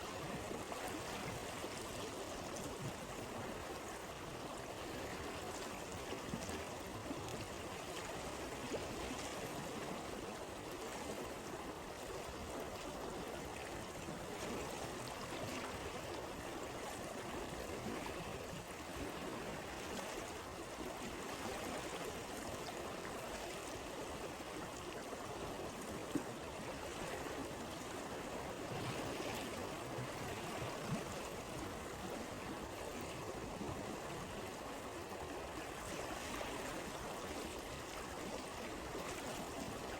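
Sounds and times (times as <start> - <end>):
stream water rushing and trickling: 0.0 - 39.9.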